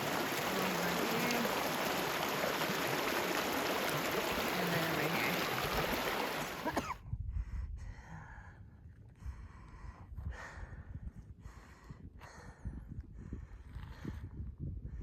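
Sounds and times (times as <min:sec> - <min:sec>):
rushing creek: 0:00.0 - 0:06.8
person breathing heavily: 0:07.3 - 0:13.7.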